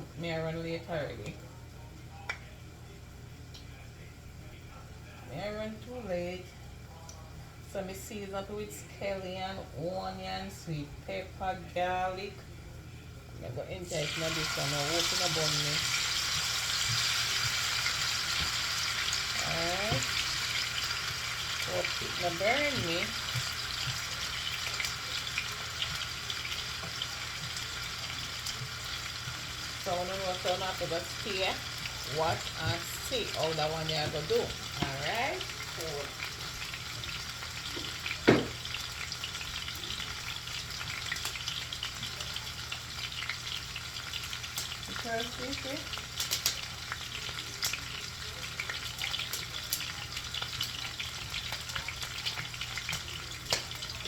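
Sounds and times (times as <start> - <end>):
faint low hum: 0.0 - 38.1
fish sizzling in hot oil: 13.9 - 54.0
small oil crackles: 34.2 - 54.0.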